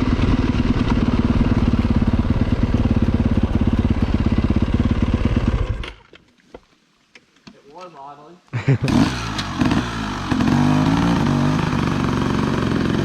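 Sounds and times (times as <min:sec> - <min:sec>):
dirt bike engine running: 0:00.0 - 0:06.0, 0:08.6 - 0:13.0.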